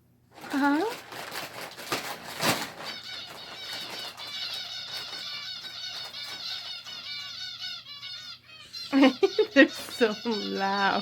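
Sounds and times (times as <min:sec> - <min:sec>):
sharp rustles or knocks: 0:00.3 - 0:06.5
finches chirping: 0:02.8 - 0:11.0.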